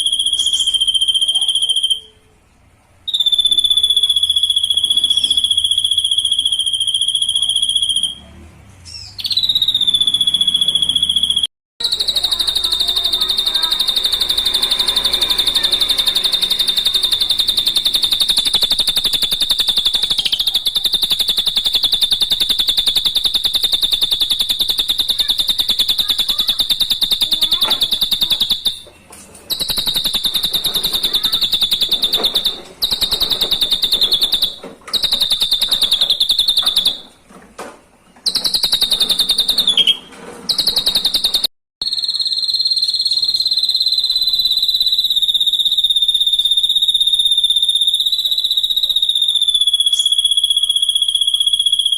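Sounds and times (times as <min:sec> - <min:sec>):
bird buzzing trill: 0:11.8 - 0:28.8, 0:29.5 - 0:37.0.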